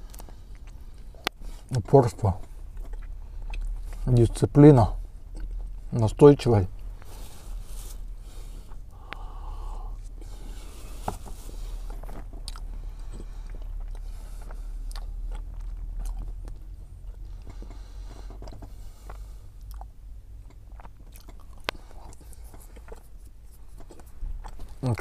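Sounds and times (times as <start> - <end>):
steady low rumble: 0.0 - 25.0
person biting and chewing pastry: 2.6 - 4.1, 7.9 - 25.0.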